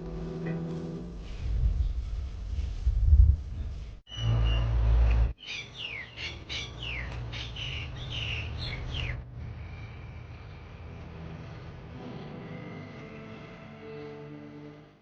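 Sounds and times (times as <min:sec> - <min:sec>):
songbirds chirping: 0:04.1 - 0:09.2.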